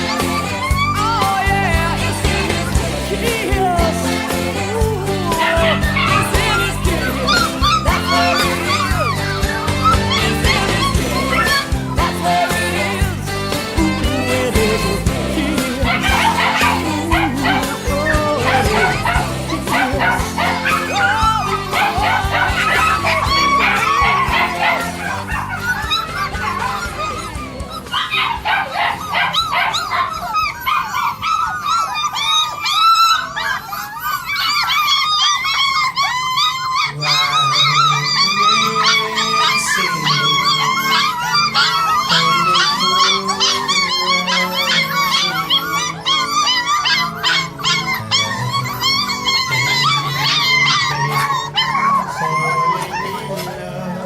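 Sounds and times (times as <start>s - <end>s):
puppies whining and yelping: 0.0s - 54.0s.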